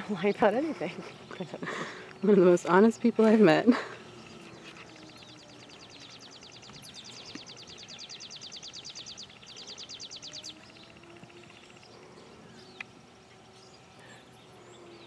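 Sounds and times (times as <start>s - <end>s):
faint outdoor background: 0.0s - 15.0s
small bird's rapid trill: 3.9s - 12.8s.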